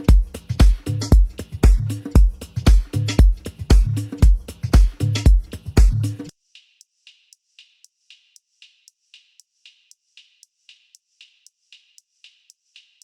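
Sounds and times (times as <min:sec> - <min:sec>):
hi-hat ticks: 0:00.0 - 0:13.0.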